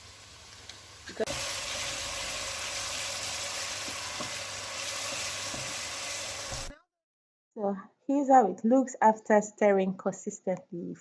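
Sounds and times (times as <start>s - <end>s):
tomatoes sizzling in oil: 0.0s - 6.7s.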